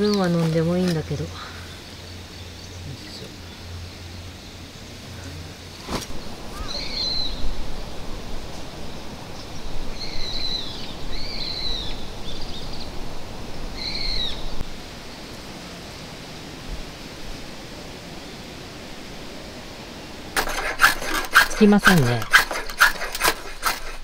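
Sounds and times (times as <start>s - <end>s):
bird calling: 5.2s - 7.4s, 9.9s - 12.9s, 13.8s - 14.6s.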